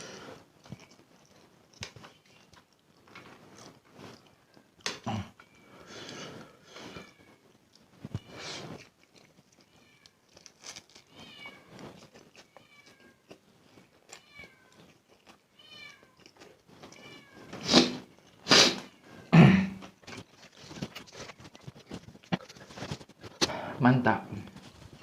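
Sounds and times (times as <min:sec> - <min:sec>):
cat eating noisily: 0:00.0 - 0:04.8, 0:05.4 - 0:19.3, 0:20.0 - 0:23.3
cat meowing softly: 0:09.6 - 0:10.2, 0:11.0 - 0:13.2, 0:14.1 - 0:14.8, 0:15.6 - 0:16.2, 0:16.9 - 0:18.0.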